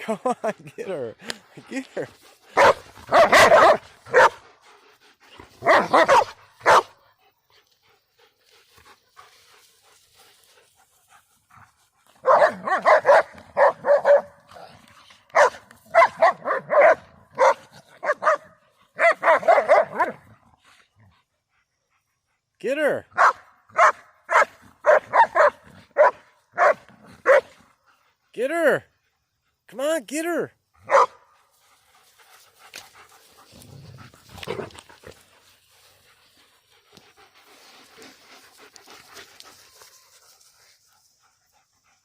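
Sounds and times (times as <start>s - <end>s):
dogs barking: 2.5s - 4.5s, 5.6s - 7.0s, 12.1s - 14.7s, 15.3s - 20.3s, 23.2s - 27.6s, 30.8s - 31.3s.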